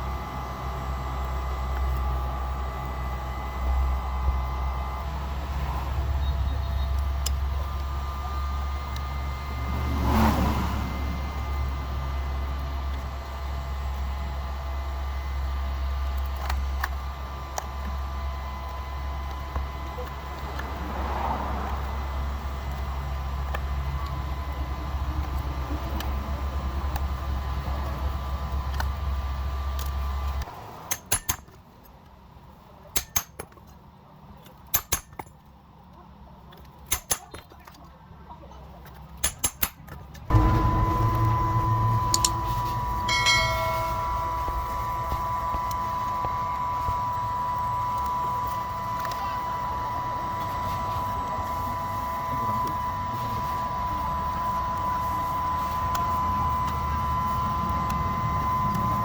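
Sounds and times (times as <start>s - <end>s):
workshop machine whining: 0.0s - 31.4s, 40.2s - 59.0s
low hum: 3.3s - 20.9s, 40.3s - 59.0s.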